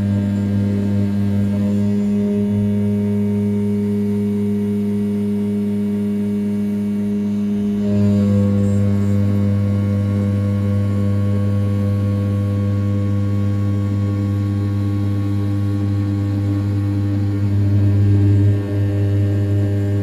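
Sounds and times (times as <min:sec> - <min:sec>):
spindle milling metal humming: 0:00.0 - 0:20.0.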